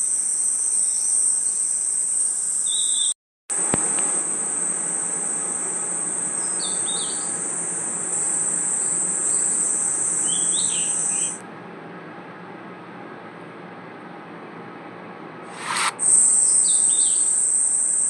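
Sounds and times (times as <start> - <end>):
cricket trill: 0.0 - 11.4, 15.5 - 18.0
short insect chirps: 0.0 - 11.4, 15.5 - 18.0
outdoor ambience hiss: 0.0 - 18.0.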